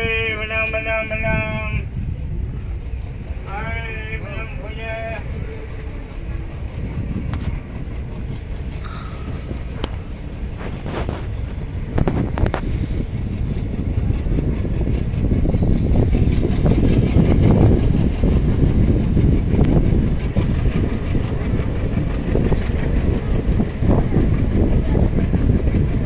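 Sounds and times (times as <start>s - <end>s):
heavy vehicle rumbling: 0.0s - 26.0s
rattling and clatter: 5.2s - 26.0s.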